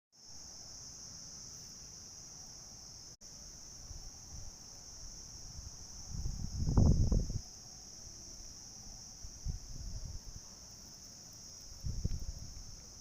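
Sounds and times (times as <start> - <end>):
insects trilling: 0.2 - 13.0.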